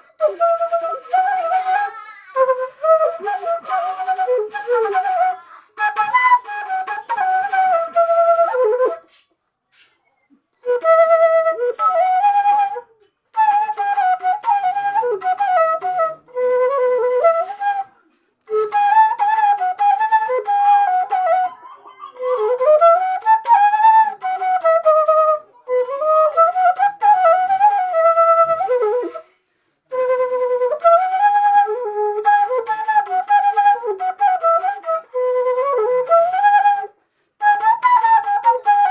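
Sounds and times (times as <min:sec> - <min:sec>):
bamboo flute melody: 0:00.0 - 0:38.9.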